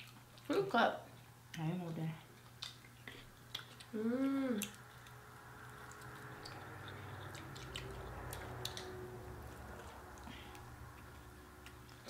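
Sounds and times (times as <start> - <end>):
people chewing food: 0.0 - 12.0
wet mouth clicks and smacks: 2.6 - 3.9, 4.6 - 9.0.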